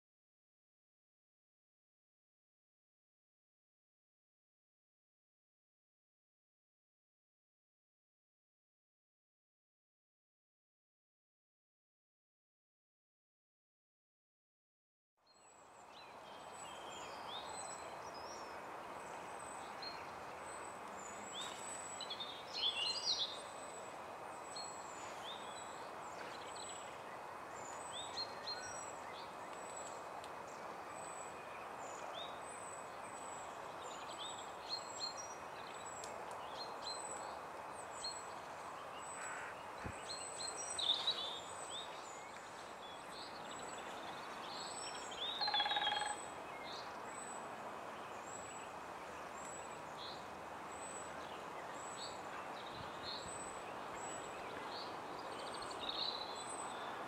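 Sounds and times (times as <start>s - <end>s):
small birds singing and calling: 15.3s - 47.4s, 48.0s - 57.0s
steady background hiss: 15.7s - 57.0s.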